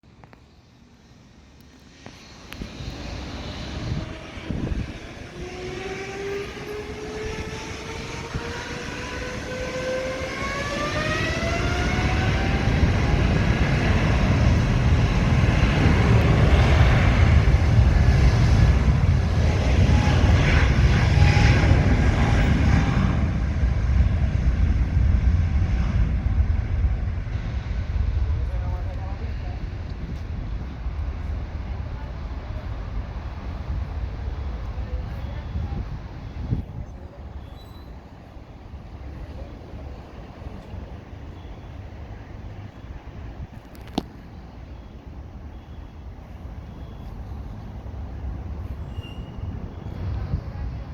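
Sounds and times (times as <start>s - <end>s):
jet engines spooling up: 0.4s - 35.0s.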